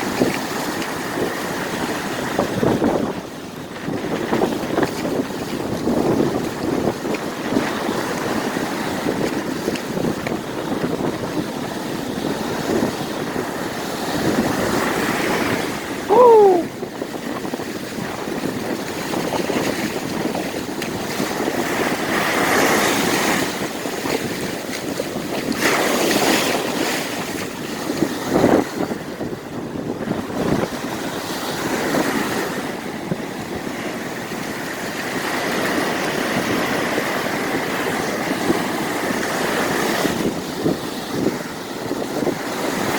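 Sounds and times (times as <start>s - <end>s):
surf breaking on beach: 0.0s - 42.9s
wind buffeting microphone: 0.0s - 42.9s
short loud falling cry: 16.1s - 16.7s.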